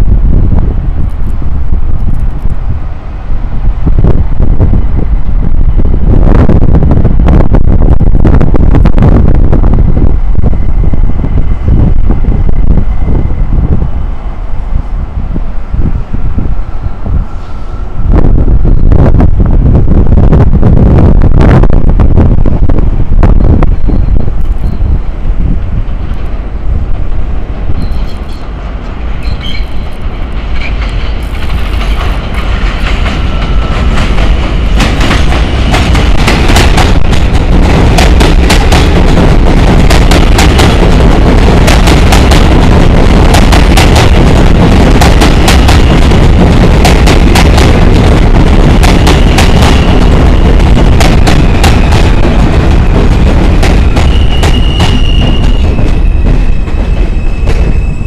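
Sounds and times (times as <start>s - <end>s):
subway train running: 0.0s - 58.0s
high wheel squeal: 27.7s - 28.6s, 29.2s - 30.0s, 53.8s - 58.0s.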